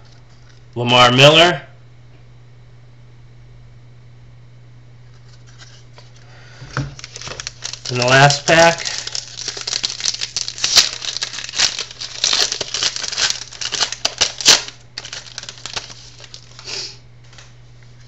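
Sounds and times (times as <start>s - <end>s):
plastic wrapper crinkling: 5.2s - 16.7s.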